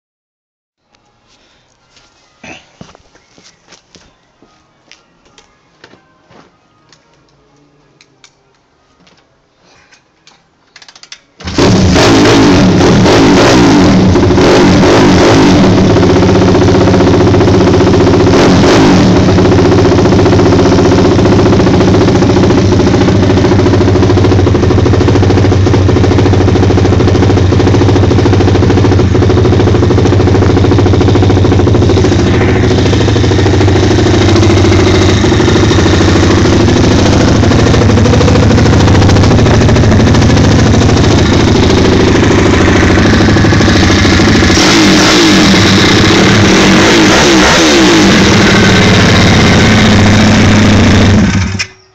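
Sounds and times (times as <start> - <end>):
motorcycle engine starting: 10.8 - 51.9
motorcycle engine revving: 11.4 - 51.8
motorcycle engine idling: 15.2 - 51.9.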